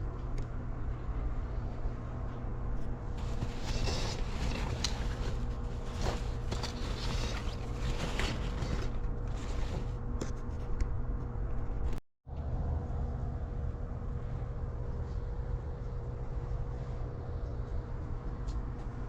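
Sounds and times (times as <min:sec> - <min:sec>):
low mechanical hum: 0:00.0 - 0:19.0
rustling and clicks of rummaging: 0:03.2 - 0:10.5.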